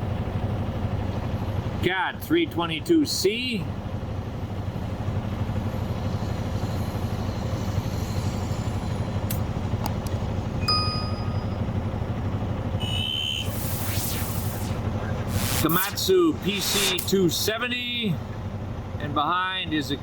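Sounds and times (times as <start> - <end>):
heavy diesel machinery running: 0.0 - 20.0
short electronic beep: 10.6 - 11.8, 12.8 - 13.9
brief high tone: 10.6 - 11.9.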